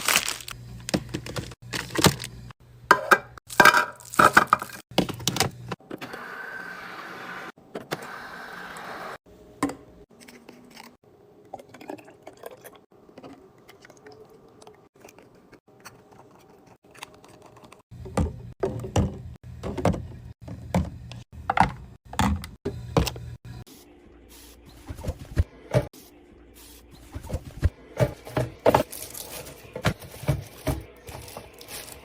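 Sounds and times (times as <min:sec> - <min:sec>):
items clicking and knocking: 0:00.8 - 0:05.8, 0:15.0 - 0:23.3, 0:27.2 - 0:32.0.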